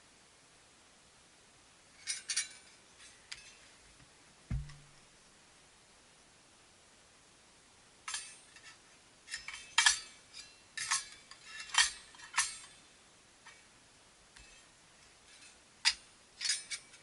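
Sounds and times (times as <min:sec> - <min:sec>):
thin metal parts clinking: 0:02.0 - 0:03.6, 0:08.1 - 0:12.9, 0:15.3 - 0:17.0.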